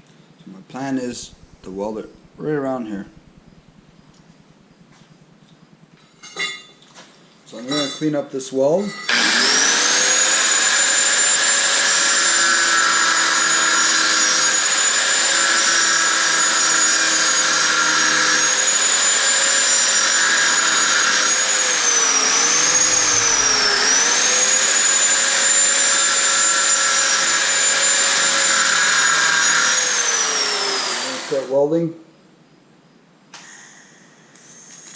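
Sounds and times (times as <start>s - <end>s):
power grinder whining on metal: 9.1s - 31.6s.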